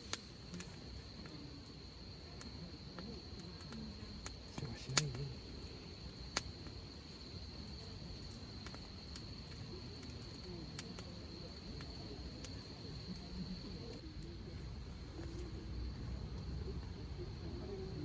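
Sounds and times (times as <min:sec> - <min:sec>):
campfire crackling and popping: 0:00.0 - 0:18.0
crickets trilling: 0:00.0 - 0:18.0.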